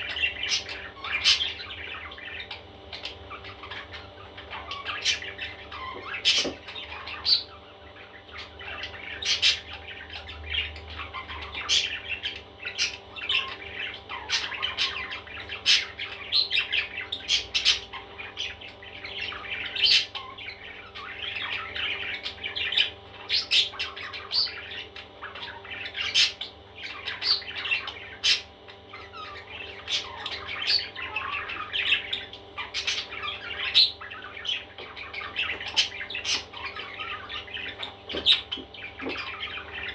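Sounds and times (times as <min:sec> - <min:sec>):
baby parrots squawking and chirping: 0:00.0 - 0:39.9.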